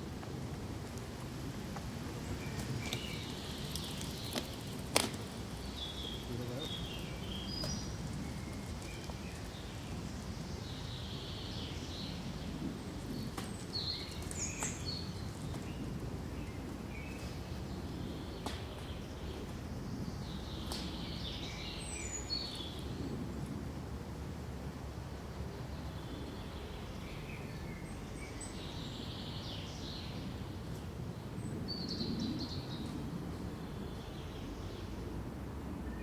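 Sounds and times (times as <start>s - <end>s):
small birds chirping: 2.2s - 23.3s.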